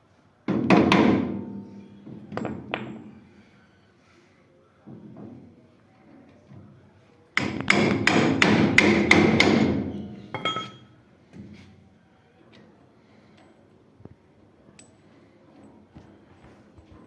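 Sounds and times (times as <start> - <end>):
hammer striking metal: 10.4 - 10.8.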